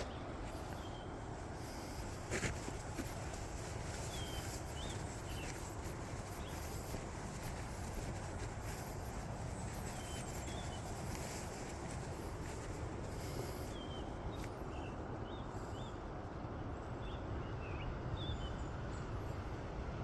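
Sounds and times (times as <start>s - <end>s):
steady rushing noise: 0.0s - 13.7s
small birds chirping: 0.0s - 16.0s.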